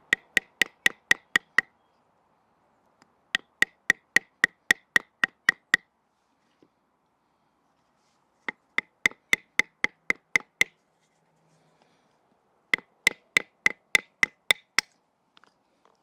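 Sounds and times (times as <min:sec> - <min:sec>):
baton striking knife spine: 0:00.0 - 0:01.6, 0:12.8 - 0:14.9.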